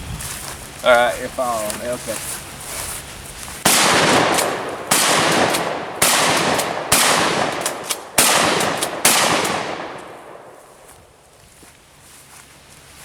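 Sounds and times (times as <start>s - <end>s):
gunshots with long echo: 3.6s - 10.8s.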